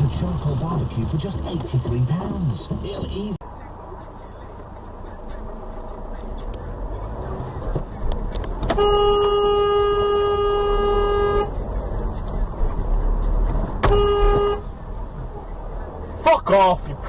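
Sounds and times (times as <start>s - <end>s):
car rumbling on road: 0.0s - 17.0s
car horn blast: 8.7s - 11.5s, 13.8s - 14.7s.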